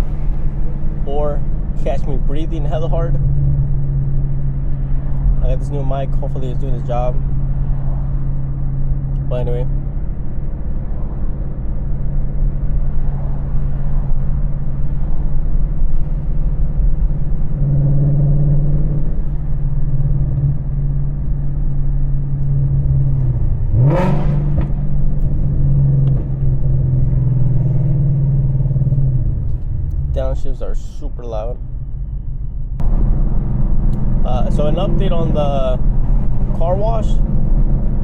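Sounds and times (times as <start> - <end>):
car engine droning: 0.0 - 38.0
engine rev-blip: 22.3 - 30.4.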